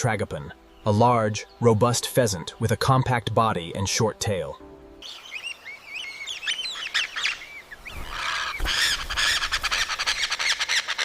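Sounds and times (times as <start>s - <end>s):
birds chirping: 0.0s - 11.0s
harsh rattling bird squawk: 6.1s - 11.0s.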